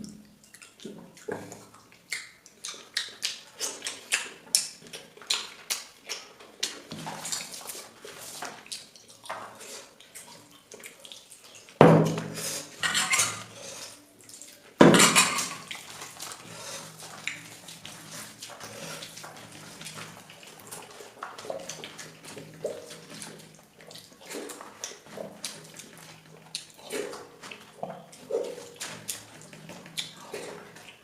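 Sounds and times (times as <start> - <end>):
chewing noises: 0.0 - 31.0
wet food handling: 0.0 - 31.0
plate and utensil clatter: 12.8 - 13.5, 14.8 - 15.7.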